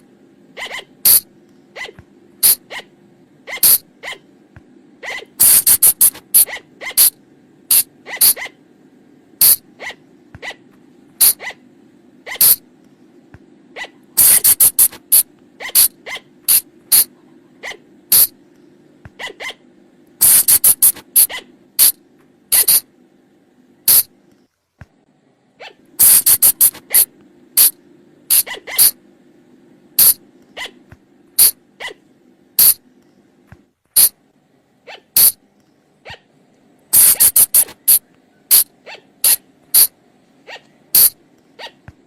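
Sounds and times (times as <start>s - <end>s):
faint low hum: 0.0s - 42.0s
animal sharp squeaks: 0.6s - 2.9s, 3.5s - 4.3s, 5.0s - 8.6s, 9.4s - 11.6s, 12.2s - 12.6s, 13.8s - 18.4s, 19.1s - 19.6s, 20.2s - 22.9s, 23.9s - 24.1s, 25.6s - 29.0s, 30.0s - 30.8s, 31.4s - 32.0s, 32.6s - 32.8s, 34.0s - 34.2s, 34.9s - 35.4s, 36.0s - 36.3s, 37.0s - 41.9s.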